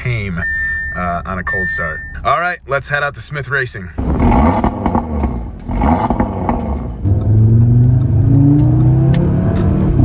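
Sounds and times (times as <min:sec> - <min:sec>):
exhaust rush: 0:04.0 - 0:10.0
car engine rising in pitch: 0:04.1 - 0:10.0.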